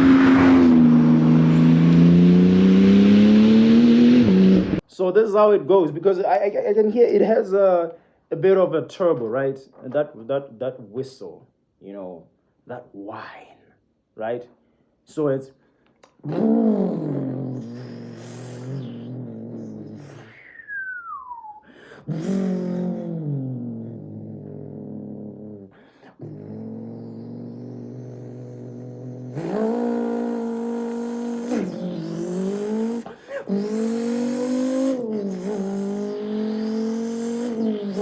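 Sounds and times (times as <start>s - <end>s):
man imitating engine with mouth: 16.0s - 38.0s.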